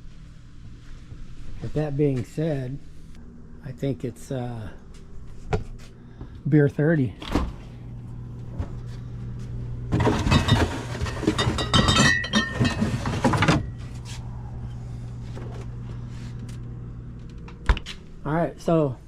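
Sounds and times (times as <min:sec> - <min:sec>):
low hum: 0:00.0 - 0:19.0
glass bottles clinking: 0:10.0 - 0:13.7.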